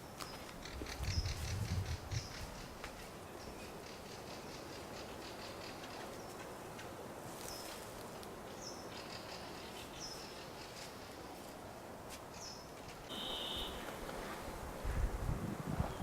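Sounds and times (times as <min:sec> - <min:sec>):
steady outdoor hiss: 0:00.0 - 0:16.0
birds chirping: 0:12.3 - 0:13.9.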